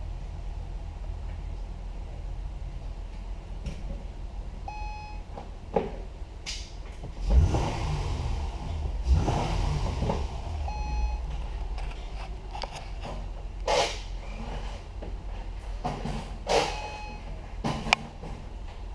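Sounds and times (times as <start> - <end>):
car engine humming: 0.0 - 18.9
short electronic beeps: 4.7 - 5.2, 10.6 - 11.3, 16.6 - 17.3.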